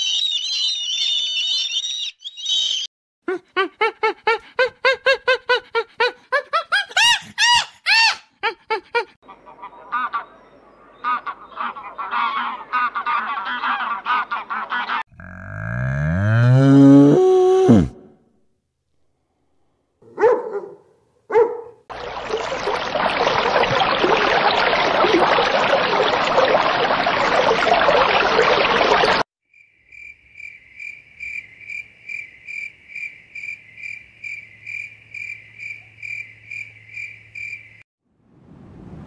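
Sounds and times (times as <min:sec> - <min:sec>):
insect chirping: 0:00.0 - 0:02.8, 0:29.5 - 0:37.8
dog barks: 0:20.0 - 0:21.8.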